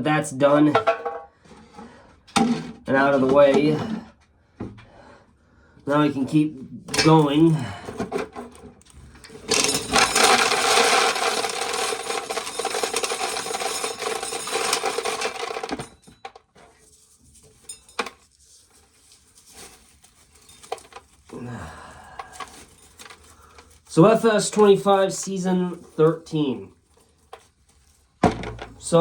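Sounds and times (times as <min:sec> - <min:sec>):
corn sheller rasping rattle: 0:08.2 - 0:29.0.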